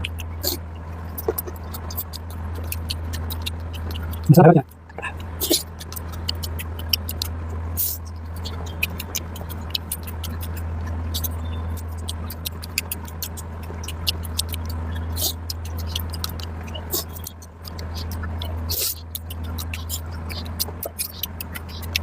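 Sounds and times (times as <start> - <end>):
wet chewing mouth clicks: 0.0 - 22.0.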